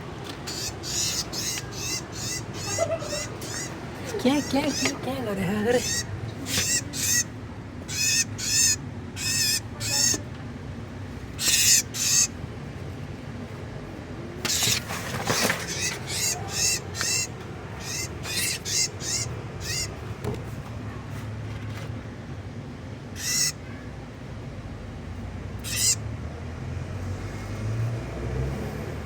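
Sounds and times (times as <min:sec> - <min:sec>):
bird shrill distress cries: 0:00.5 - 0:05.0, 0:05.8 - 0:10.2, 0:11.3 - 0:12.4, 0:14.5 - 0:14.8, 0:15.4 - 0:20.0, 0:23.2 - 0:23.8, 0:25.6 - 0:26.0
rustling scuffle: 0:14.5 - 0:16.4.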